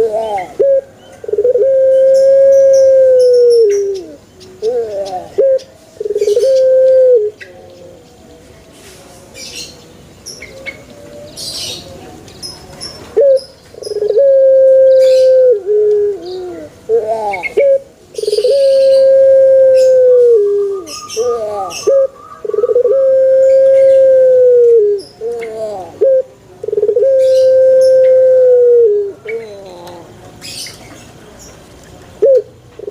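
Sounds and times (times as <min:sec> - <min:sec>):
dove cooing: 0:00.0 - 0:08.0, 0:13.1 - 0:30.6, 0:32.2 - 0:32.9.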